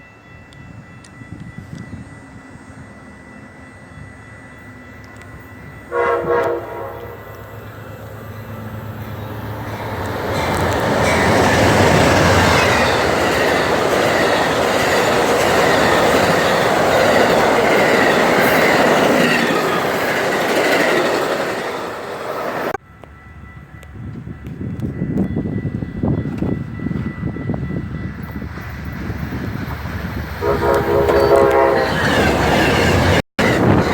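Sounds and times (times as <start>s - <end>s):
train rolling rumble: 3.8s - 33.9s
train horn blast: 5.8s - 7.7s, 30.4s - 32.2s.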